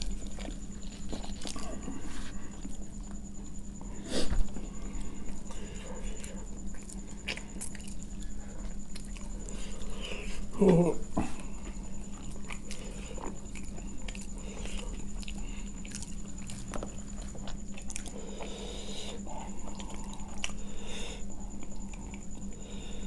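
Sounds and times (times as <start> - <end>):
wet chewing with mouth clicks: 4.9 - 10.8, 11.6 - 20.7, 21.5 - 22.6.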